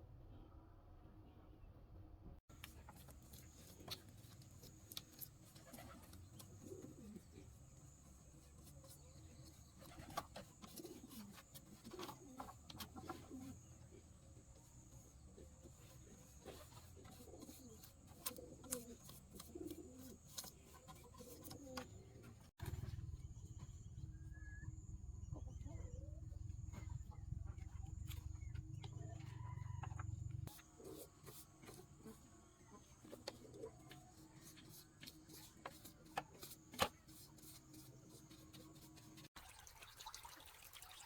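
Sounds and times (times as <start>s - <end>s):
birds cooing: 5.6s - 7.7s, 8.9s - 22.4s.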